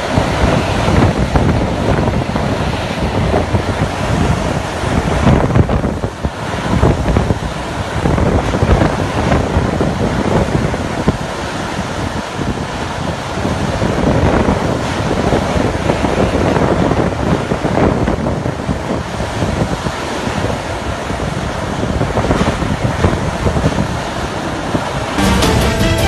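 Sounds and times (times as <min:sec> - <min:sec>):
storm wind buffeting microphone: 0:00.0 - 0:25.2
music: 0:25.2 - 0:26.0.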